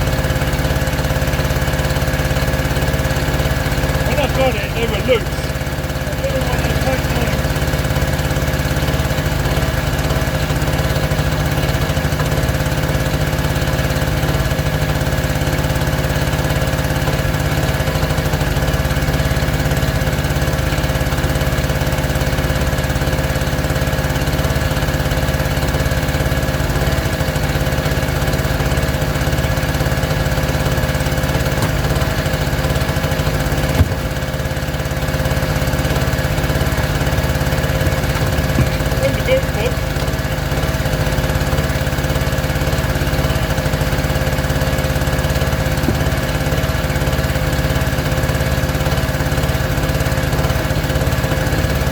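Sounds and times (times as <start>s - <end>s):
small engine running: 0.0s - 51.9s
brief knock: 33.7s - 34.2s.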